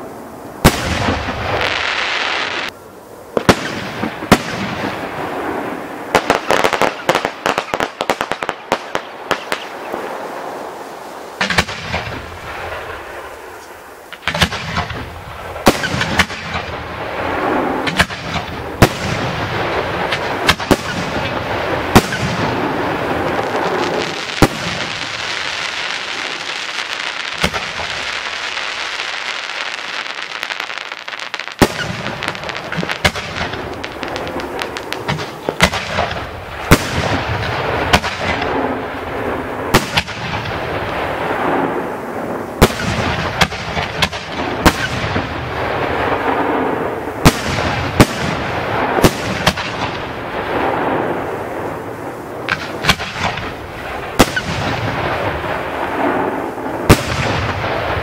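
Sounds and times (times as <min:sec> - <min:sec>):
firework shells bursting: 0:17.4 - 0:38.6.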